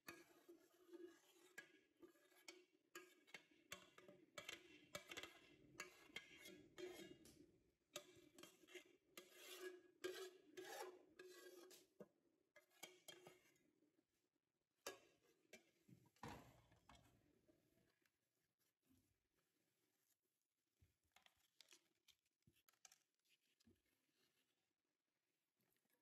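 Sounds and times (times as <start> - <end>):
utensils scraping and knocking pots: 0.0 - 13.6.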